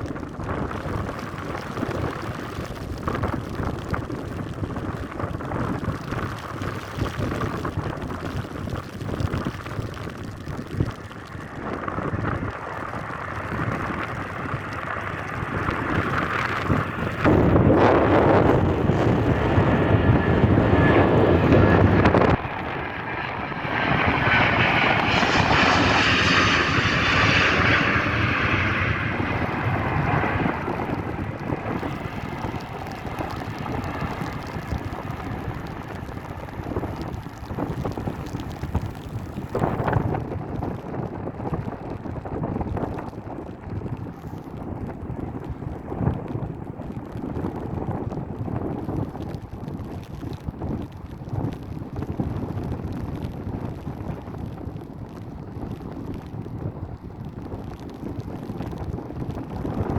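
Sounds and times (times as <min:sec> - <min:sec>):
jet engine whine: 0:00.0 - 0:43.2
jet engines rumbling: 0:00.0 - 0:46.7
rain: 0:00.0 - 0:59.9
wind: 0:00.0 - 0:59.9.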